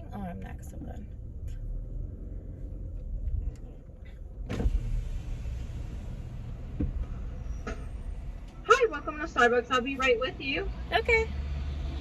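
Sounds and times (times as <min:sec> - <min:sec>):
low cabin rumble: 0:00.0 - 0:11.2
outside noise: 0:00.0 - 0:12.0
thump: 0:04.4 - 0:05.0, 0:06.7 - 0:08.0.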